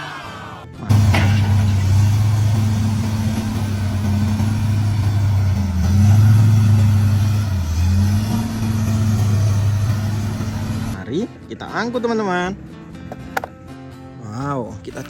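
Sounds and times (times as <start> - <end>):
heavy engine running: 0.9 - 11.0.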